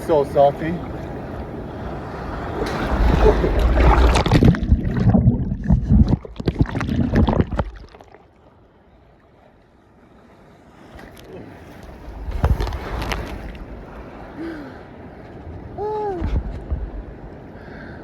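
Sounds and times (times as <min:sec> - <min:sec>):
ocean surf rushing: 0:00.0 - 0:08.0, 0:10.9 - 0:18.0
water splashing: 0:00.0 - 0:08.4, 0:11.0 - 0:14.7.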